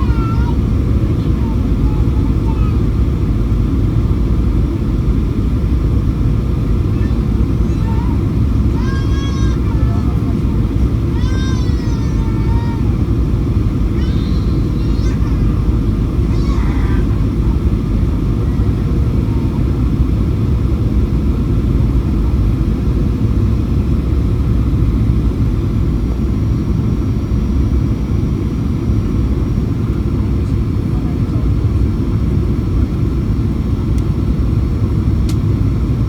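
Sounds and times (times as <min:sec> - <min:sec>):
faint voices: 0:00.0 - 0:03.2, 0:06.6 - 0:19.8, 0:29.8 - 0:32.9
airliner cabin engine rumble: 0:00.0 - 0:36.0.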